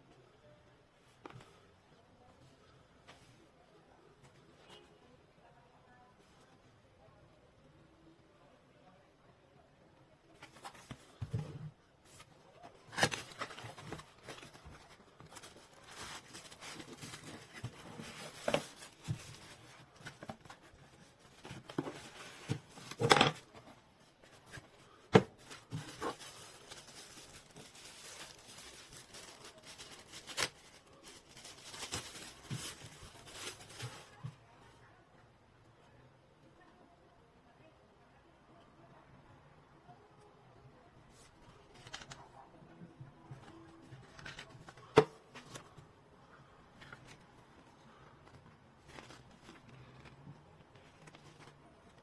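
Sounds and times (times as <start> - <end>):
packaging rustling: 10.4 - 34.4, 43.4 - 45.8, 46.8 - 52.0.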